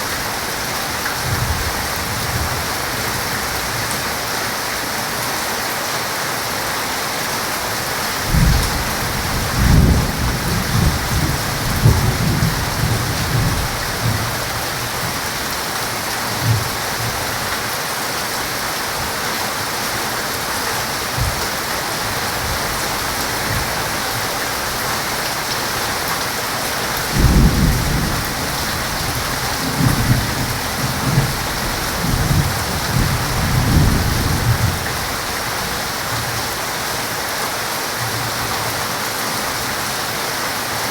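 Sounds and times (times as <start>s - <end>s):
heavy rain hissing: 0.0s - 40.9s
thunder rumbling: 8.2s - 15.2s, 27.1s - 35.1s.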